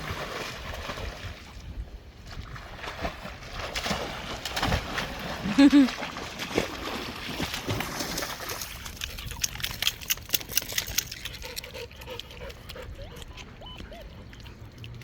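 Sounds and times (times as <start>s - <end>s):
dog splashing in water: 0.0s - 1.6s, 2.3s - 15.0s
dog whining: 12.7s - 14.8s.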